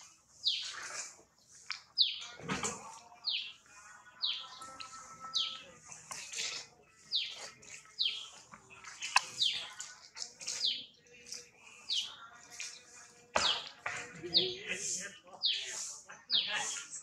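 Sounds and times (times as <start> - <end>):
bird chirping: 0.3 - 2.4, 3.2 - 14.6.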